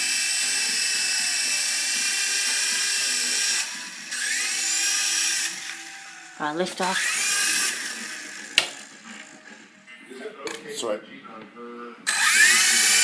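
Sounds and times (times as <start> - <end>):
small helicopter motor whining: 0.0 - 9.0, 12.1 - 13.0.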